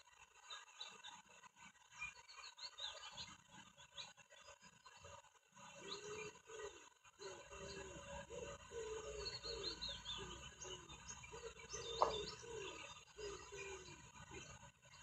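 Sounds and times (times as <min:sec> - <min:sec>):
low falling bird calls: 0:01.9 - 0:15.0
high bird chirps and trill: 0:08.5 - 0:15.0.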